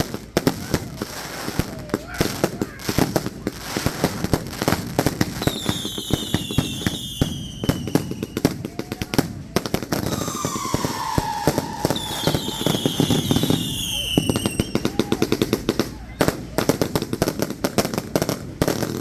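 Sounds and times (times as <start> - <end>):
fireworks crackling pops and bangs: 0.0 - 19.0
fireworks whistles falling in pitch: 5.4 - 8.7, 10.0 - 15.4.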